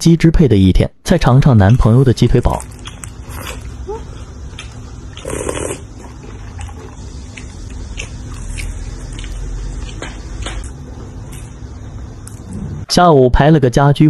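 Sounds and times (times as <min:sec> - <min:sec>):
person chewing food: 0:01.7 - 0:11.6.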